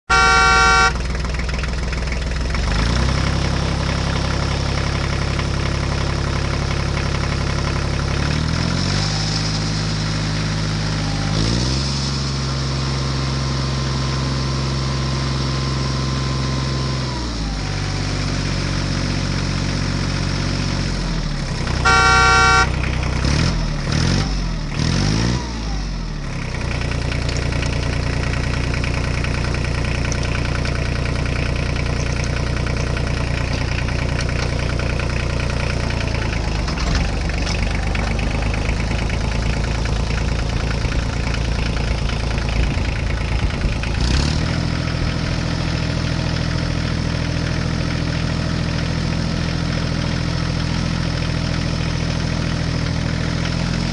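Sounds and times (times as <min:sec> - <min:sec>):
vehicle engine running: 0:00.0 - 0:53.9
horn honk: 0:00.1 - 0:01.2, 0:21.8 - 0:23.4.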